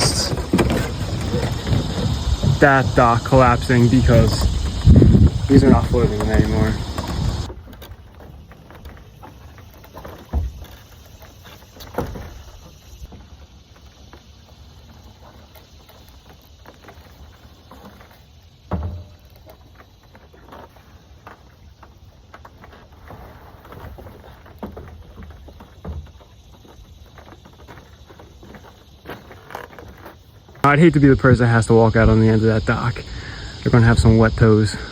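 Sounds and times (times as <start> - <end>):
dull bass-heavy thumps: 0.0 - 7.5
low steady background noise: 0.0 - 34.9.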